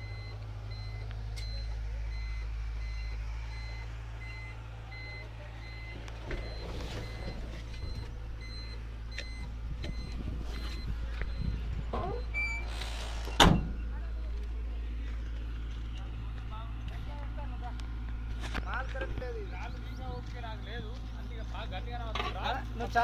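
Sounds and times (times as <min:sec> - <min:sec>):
truck reversing alarm beeping: 0:00.0 - 0:14.0
truck engine hum: 0:00.0 - 0:23.0.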